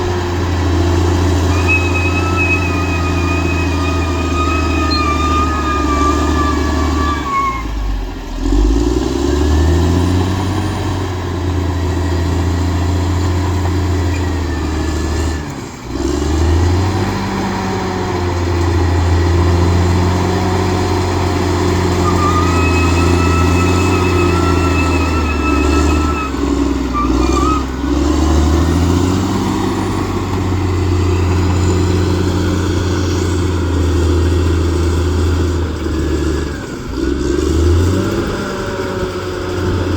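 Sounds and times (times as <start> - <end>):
bulldozer diesel engine under load: 0.0 - 39.9
thin high whine: 1.5 - 7.6, 22.0 - 26.4.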